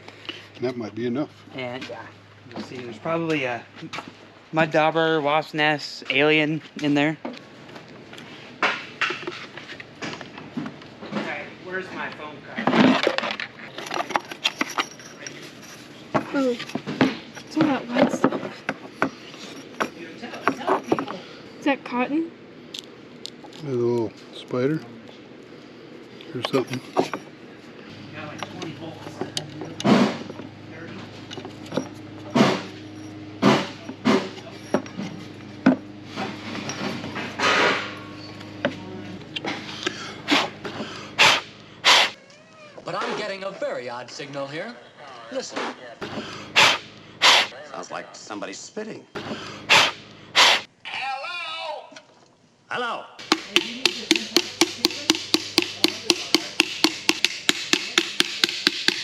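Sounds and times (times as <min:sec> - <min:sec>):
rapid ringing knocking: 0:53.2 - 0:59.0.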